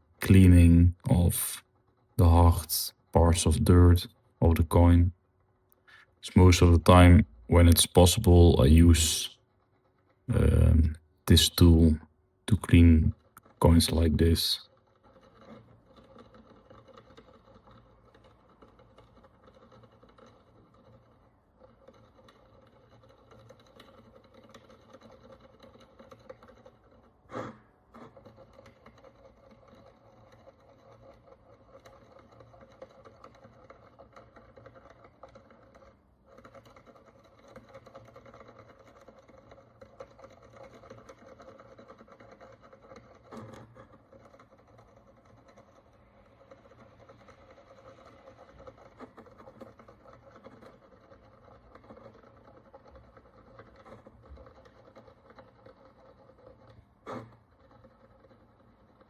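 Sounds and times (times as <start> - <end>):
low steady hum: 0.0 - 1.6, 2.2 - 5.2, 5.9 - 9.4, 10.3 - 14.6
needle scratching a coin: 6.0 - 59.0.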